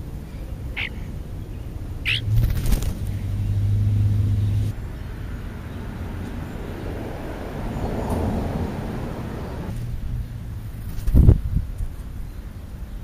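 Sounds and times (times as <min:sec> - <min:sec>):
low steady hum: 0:00.0 - 0:06.4
bird squeaky call: 0:00.7 - 0:01.1, 0:02.0 - 0:02.3
bird wings flapping: 0:02.1 - 0:03.3, 0:10.7 - 0:11.5.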